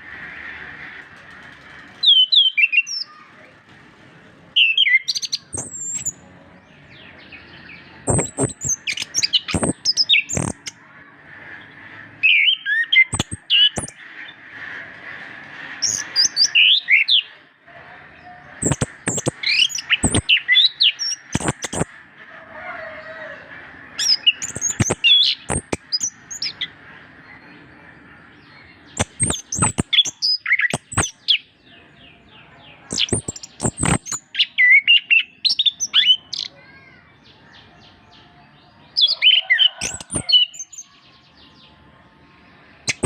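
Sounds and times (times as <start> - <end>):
sharp bird clicks: 5.1 - 6.1, 8.1 - 10.7, 13.1 - 14.0, 18.6 - 21.9, 24.0 - 26.6, 29.0 - 31.4, 32.9 - 34.2, 39.8 - 40.8.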